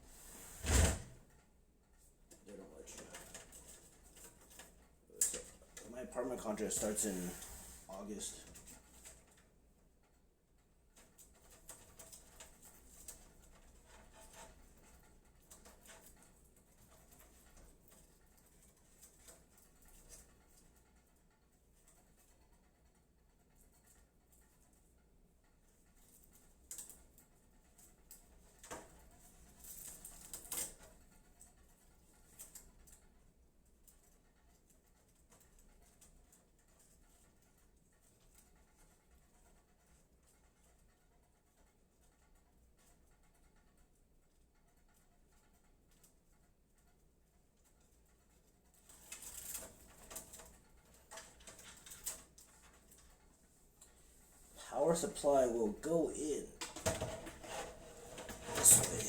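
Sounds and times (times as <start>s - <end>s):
handling rustles and light clicks: 1.3s - 54.6s, 56.5s - 59.0s
clicks and rustling of hands: 47.6s - 54.2s.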